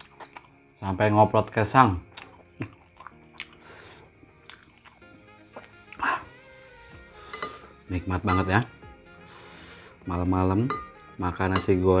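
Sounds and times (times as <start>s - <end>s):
person chewing: 0.0s - 0.6s, 2.1s - 5.0s
soft background music: 0.0s - 12.0s.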